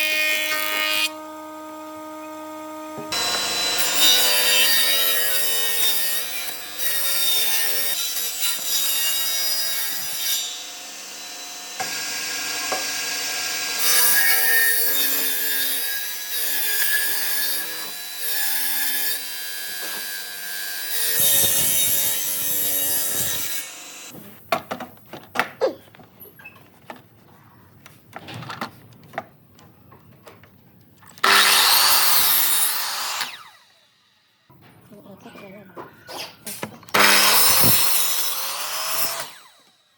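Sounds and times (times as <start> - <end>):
power tool cutting wood: 0.0 - 24.1, 31.2 - 34.3, 36.9 - 39.8.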